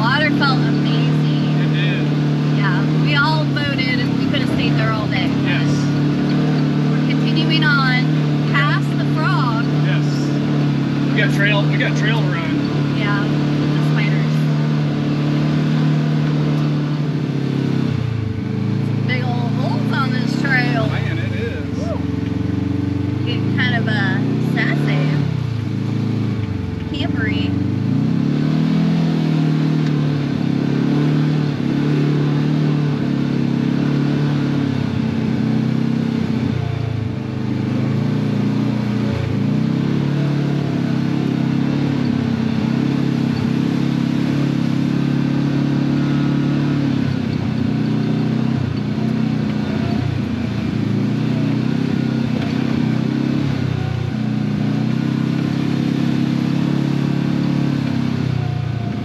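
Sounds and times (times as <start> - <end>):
utility vehicle engine revving: 0.0 - 59.0.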